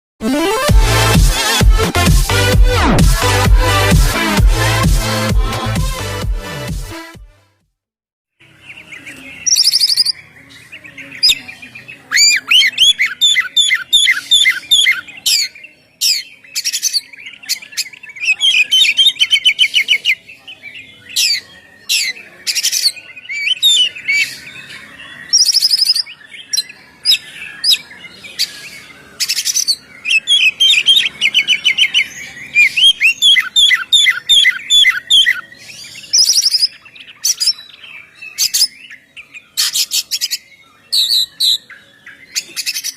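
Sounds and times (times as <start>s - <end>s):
bird singing trills and whistles: 8.6s - 42.9s.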